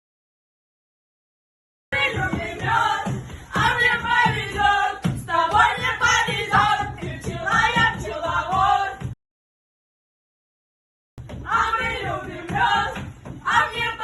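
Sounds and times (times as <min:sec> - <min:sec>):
voices singing together: 0:01.9 - 0:09.2, 0:11.4 - 0:14.0.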